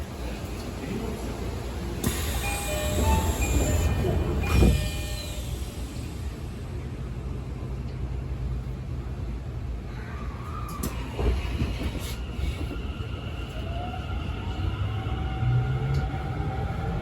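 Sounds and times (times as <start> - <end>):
subway train rumble: 0.0 - 17.0.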